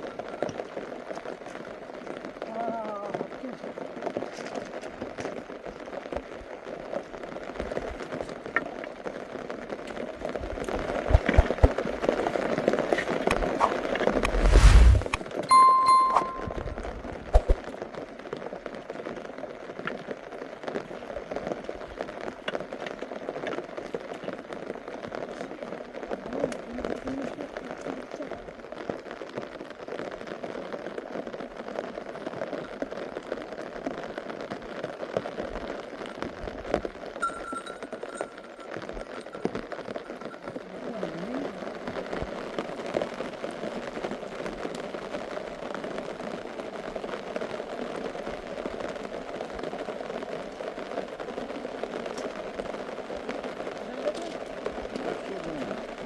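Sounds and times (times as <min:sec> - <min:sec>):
steady rain pattering: 0:00.0 - 0:15.5, 0:16.6 - 0:56.0.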